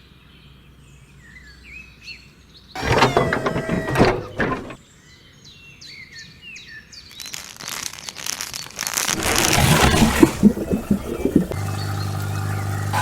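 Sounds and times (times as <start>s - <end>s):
birds chirping: 9.2s - 13.0s.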